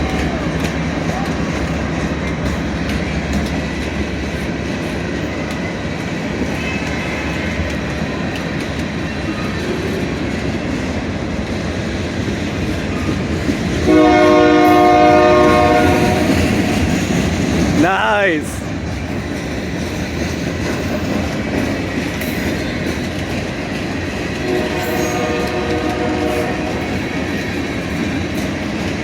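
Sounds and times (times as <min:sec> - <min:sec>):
freight train rumble and wheel clatter: 0:00.0 - 0:29.0
locomotive horn blast: 0:13.9 - 0:16.5, 0:24.4 - 0:27.0.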